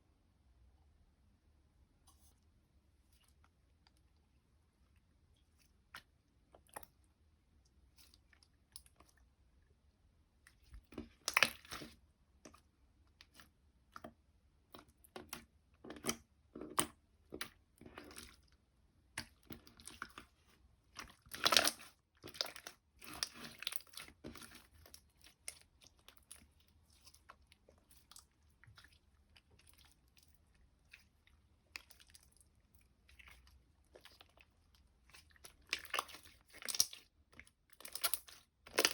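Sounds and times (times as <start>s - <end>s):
slime squishing and crackling: 10.6s - 12.0s, 19.1s - 38.9s.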